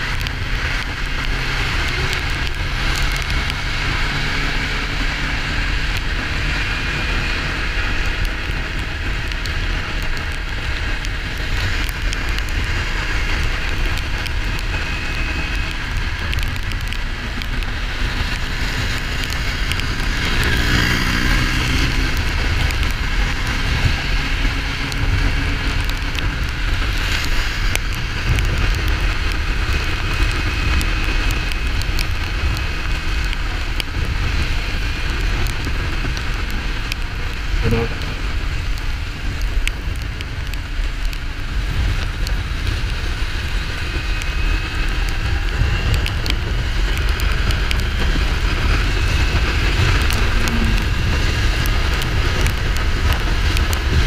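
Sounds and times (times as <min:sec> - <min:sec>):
motorcycle engine running: 0:00.0 - 0:54.0
wind rumble: 0:00.0 - 0:54.0
pitched sound: 0:37.6 - 0:38.2.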